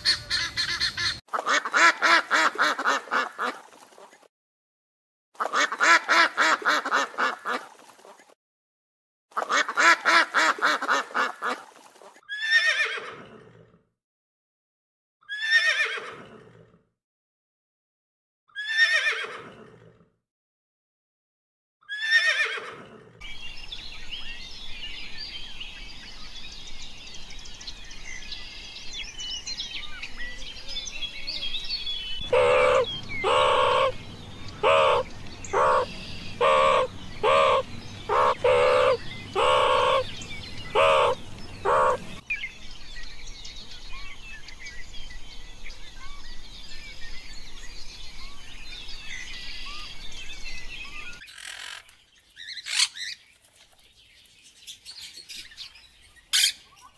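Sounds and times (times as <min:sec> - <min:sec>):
small birds chirping: 0:23.2 - 0:56.9
animal calls: 0:32.2 - 0:42.2.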